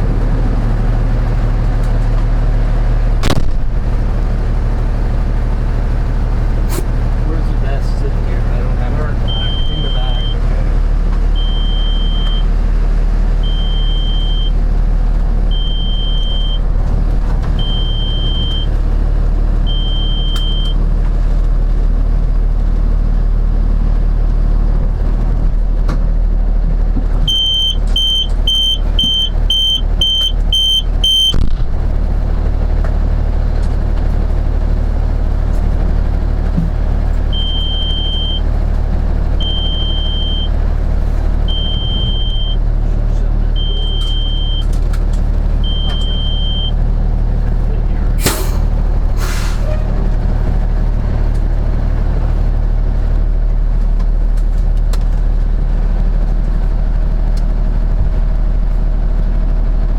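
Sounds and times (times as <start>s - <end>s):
engine low rumble: 0.0s - 59.9s
electronic warning beeper: 9.2s - 10.6s, 11.4s - 12.5s, 13.4s - 14.6s, 15.5s - 16.6s, 17.6s - 18.8s, 19.7s - 20.8s, 27.3s - 31.4s, 37.4s - 38.4s, 39.4s - 40.5s, 41.5s - 42.6s, 43.6s - 44.7s, 45.6s - 46.8s.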